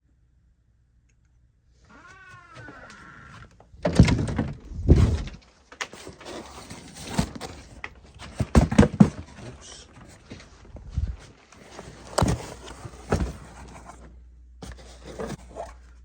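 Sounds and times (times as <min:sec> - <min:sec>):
short falling squeak: 0:01.9 - 0:03.4
clunks and knocks: 0:02.4 - 0:05.4, 0:07.0 - 0:09.5.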